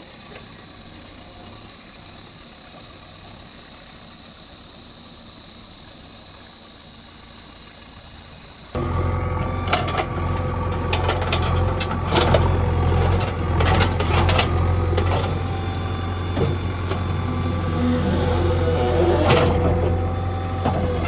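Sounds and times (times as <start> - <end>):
diesel engine running: 8.8 - 21.0
metallic knocks and rattles: 8.8 - 21.0.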